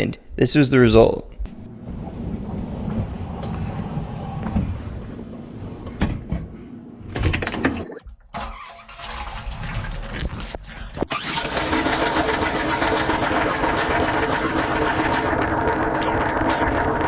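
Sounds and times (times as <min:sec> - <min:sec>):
dishwasher motor and pump rumble: 0:01.5 - 0:17.0
water spraying against dishes: 0:11.1 - 0:17.0.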